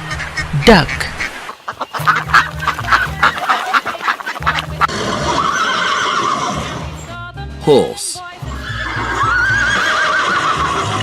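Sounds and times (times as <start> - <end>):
farm animal calls: 0.0 - 7.1, 8.5 - 11.0
background music: 0.0 - 11.0.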